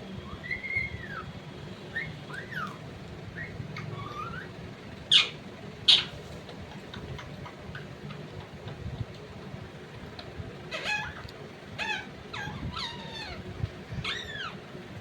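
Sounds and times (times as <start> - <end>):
parrot squawks: 5.1 - 6.1, 10.7 - 11.2, 11.8 - 13.4, 14.0 - 14.6.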